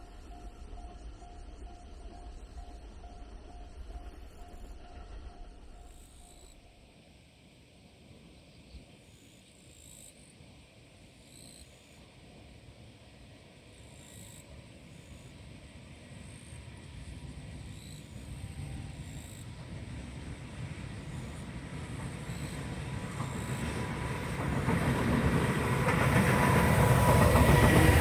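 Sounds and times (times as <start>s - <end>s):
train rumbling past: 10.4s - 28.0s
insects buzzing: 13.6s - 28.0s.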